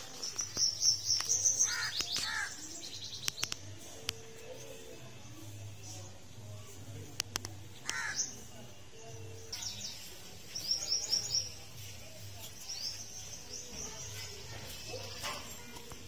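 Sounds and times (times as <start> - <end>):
small birds chirping: 0.0 - 16.0
sharp clicks: 3.2 - 4.2, 7.1 - 8.0.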